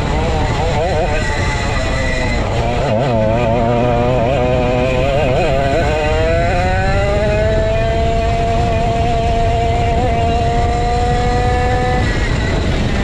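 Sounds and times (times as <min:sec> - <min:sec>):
go-kart engine accelerating: 0:00.0 - 0:13.0.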